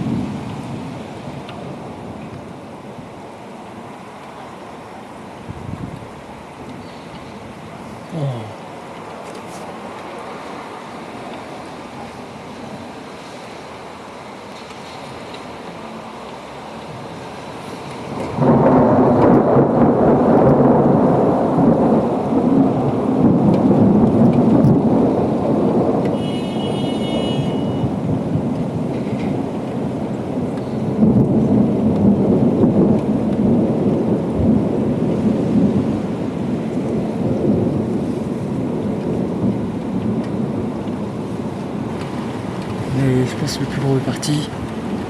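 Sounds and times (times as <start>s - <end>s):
rolling thunder: 0.0s - 3.2s, 5.4s - 8.1s, 16.9s - 43.8s
steady rain: 0.0s - 45.0s.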